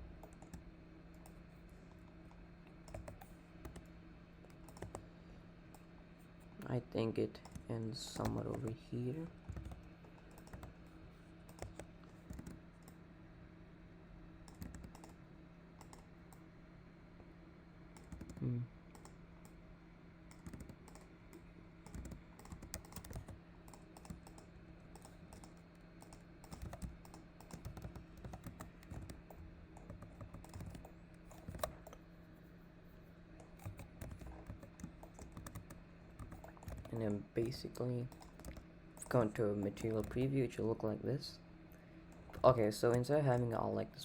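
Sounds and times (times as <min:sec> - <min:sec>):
low electrical hum: 0:00.0 - 0:44.0
keyboard keystrokes: 0:02.8 - 0:03.9, 0:04.5 - 0:05.0, 0:07.4 - 0:08.8, 0:09.5 - 0:10.8, 0:11.5 - 0:13.0, 0:14.5 - 0:15.2, 0:15.8 - 0:16.0, 0:18.0 - 0:19.6, 0:20.3 - 0:32.0, 0:33.4 - 0:37.0, 0:38.1 - 0:40.3.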